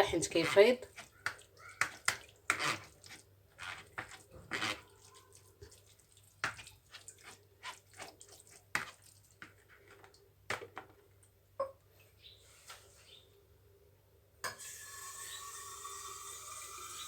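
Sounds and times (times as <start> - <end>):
water dripping into a pot: 0.9 - 3.3, 4.8 - 10.3, 14.4 - 17.0.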